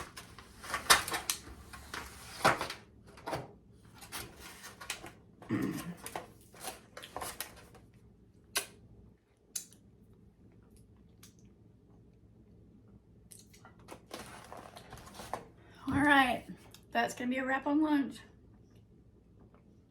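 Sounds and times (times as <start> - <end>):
close-miked eating sounds: 13.2 - 13.9.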